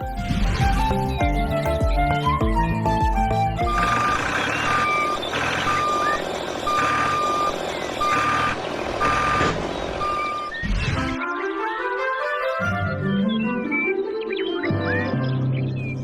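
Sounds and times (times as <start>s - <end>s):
engine running: 1.9s - 11.2s
vehicle reversing alarm beeping: 3.7s - 11.2s.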